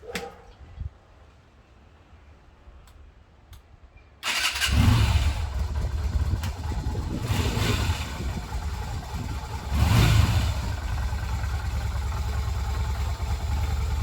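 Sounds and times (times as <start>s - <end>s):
motorcycle engine starting and revving: 4.2s - 14.0s.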